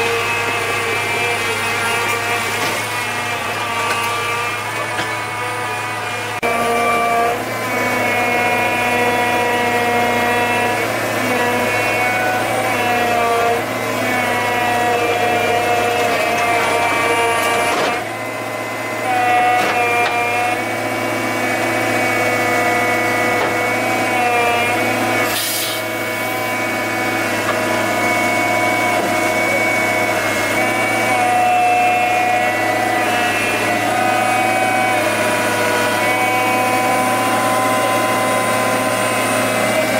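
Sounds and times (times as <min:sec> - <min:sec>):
motor-driven machine running: 0:00.0 - 0:39.9.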